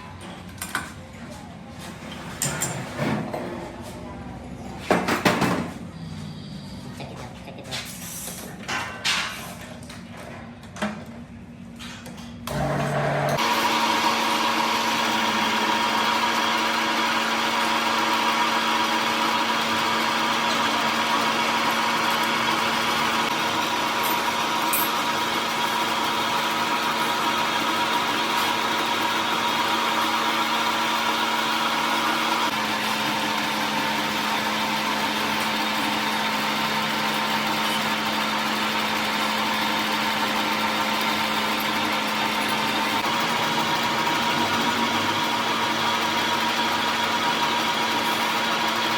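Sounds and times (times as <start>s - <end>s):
machine motor humming and whining: 12.5s - 48.9s.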